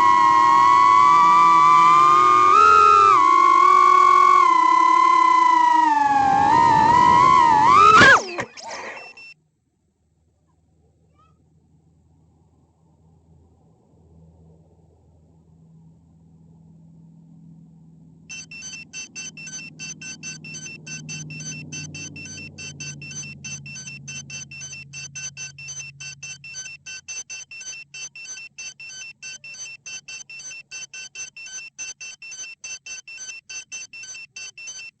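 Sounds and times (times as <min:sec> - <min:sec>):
drone buzzer beeping rapidly: 0:00.0 - 0:08.2, 0:18.3 - 0:35.0
low hum: 0:00.0 - 0:09.3.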